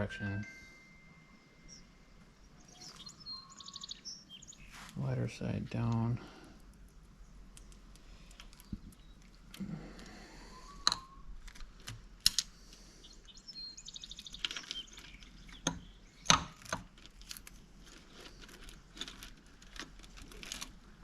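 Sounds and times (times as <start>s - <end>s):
rattle of small ticks: 6.6s - 10.1s, 13.5s - 20.8s.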